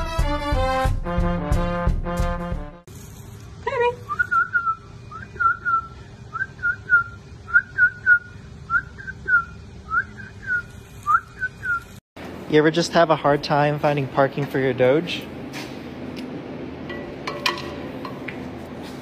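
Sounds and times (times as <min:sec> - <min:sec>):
high-pitched whistled chirps: 0:04.0 - 0:12.0.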